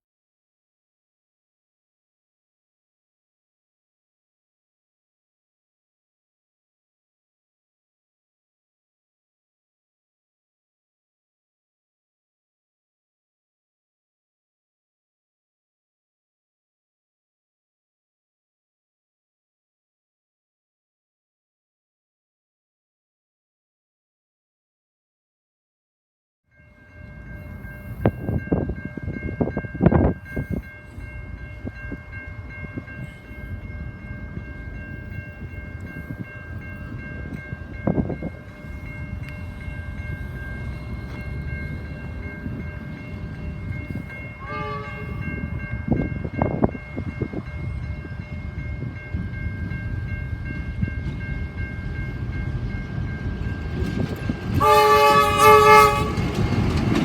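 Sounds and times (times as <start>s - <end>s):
diesel locomotives rumbling: 26.7s - 57.0s
loud multi-note horn blast: 44.4s - 45.3s, 54.6s - 56.3s.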